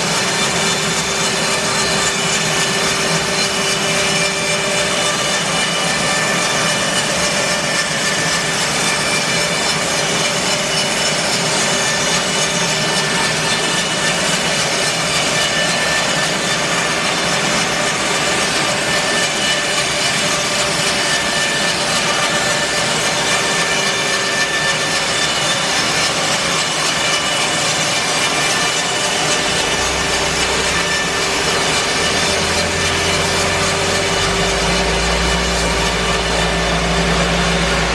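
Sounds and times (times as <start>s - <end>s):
bandsaw mill cutting log: 0.0s - 37.9s
machine whine: 0.0s - 37.9s.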